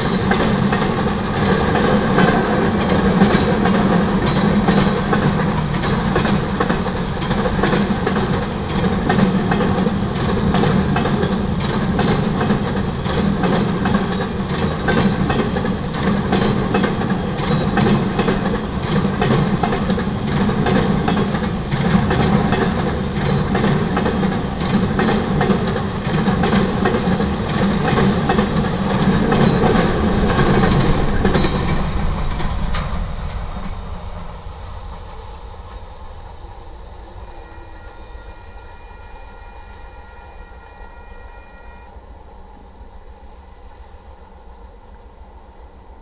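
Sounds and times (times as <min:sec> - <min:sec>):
wheels clicking on rail joints: 0:00.0 - 0:33.9
freight train rumble: 0:00.0 - 0:46.0.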